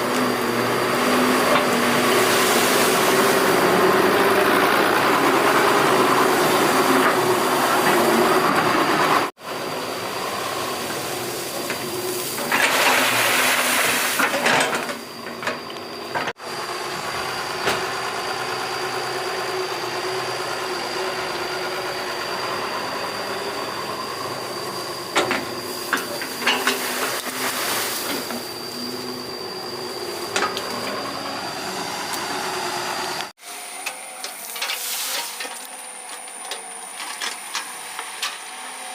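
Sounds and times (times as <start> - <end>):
excavator engine running with whine: 0.0 - 38.9
loud hydraulic hissing surge: 1.0 - 8.4, 9.8 - 15.2, 20.4 - 33.6.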